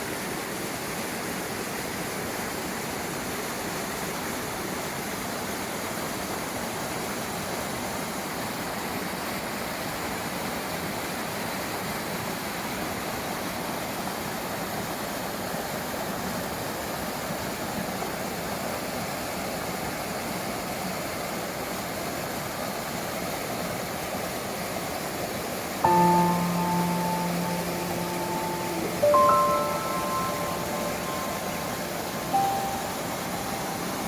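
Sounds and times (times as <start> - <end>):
stream water flowing: 0.0 - 34.0
music with bell-like tones: 25.9 - 34.0.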